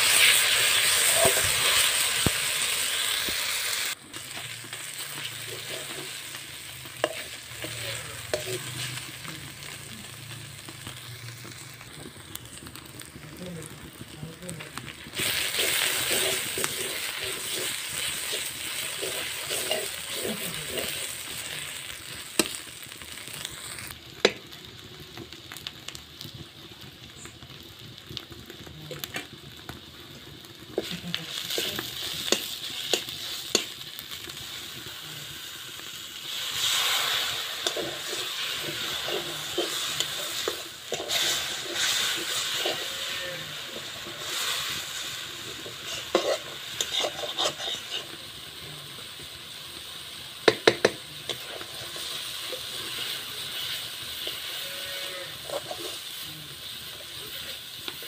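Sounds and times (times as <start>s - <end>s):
metal spatula scraping a pan: 0.0s - 2.4s, 4.3s - 9.8s, 15.1s - 22.6s, 36.3s - 48.2s, 51.3s - 56.2s
masala sizzling in a wok: 0.0s - 58.0s
spatula tapping on metal: 50.4s - 51.0s.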